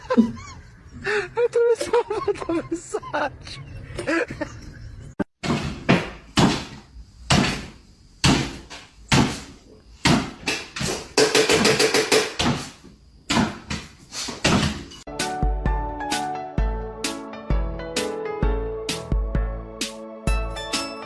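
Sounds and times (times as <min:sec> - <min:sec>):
sharp knocks or bangs: 0:05.4 - 0:14.9.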